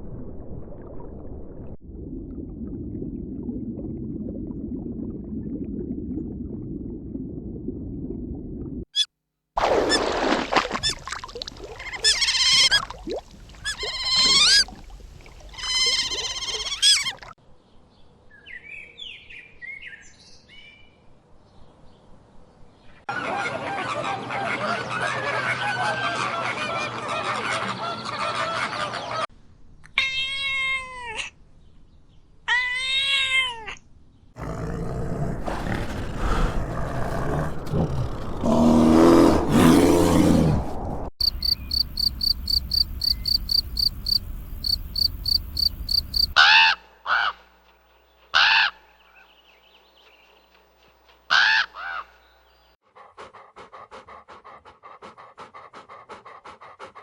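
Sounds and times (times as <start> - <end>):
long arched animal calls: 11.7 - 17.3
short sharp animal calls: 13.6 - 14.8
high insect-like chirping: 41.2 - 46.4.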